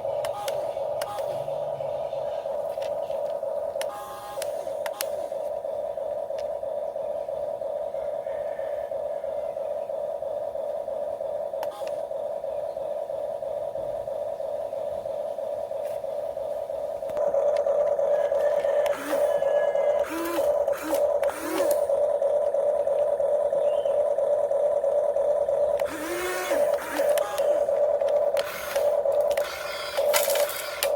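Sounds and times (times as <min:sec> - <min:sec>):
electric motor whining: 0:00.0 - 0:02.0, 0:02.6 - 0:05.4, 0:17.1 - 0:23.9, 0:24.7 - 0:30.9.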